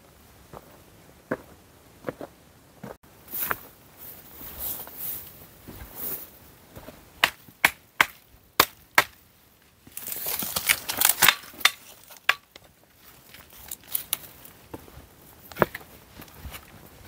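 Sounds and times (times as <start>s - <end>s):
blade chopping dry wood: 7.2s - 9.2s, 9.9s - 12.6s
wood rustling and snapping: 9.9s - 12.7s.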